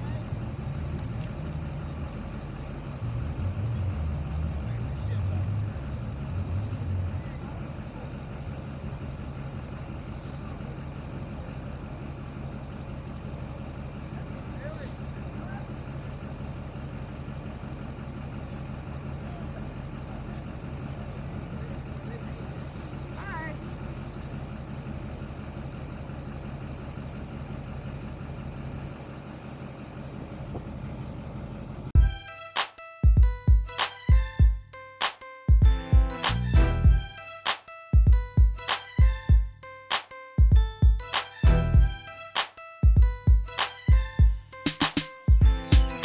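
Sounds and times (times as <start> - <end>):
truck engine idling: 0.0 - 32.5, 33.2 - 46.0
hip-hop music with deep bass: 32.0 - 46.0.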